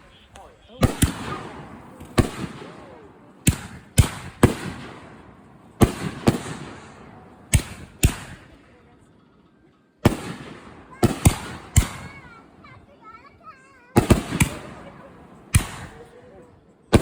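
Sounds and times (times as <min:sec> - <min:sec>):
fireworks bangs with rumble: 0:00.8 - 0:08.6, 0:10.0 - 0:12.5, 0:13.9 - 0:16.2.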